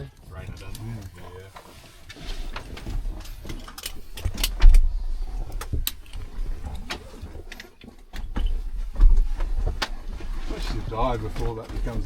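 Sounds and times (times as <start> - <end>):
low rumble: 0.6 - 7.6
sharp clicks and knocks: 0.6 - 10.0.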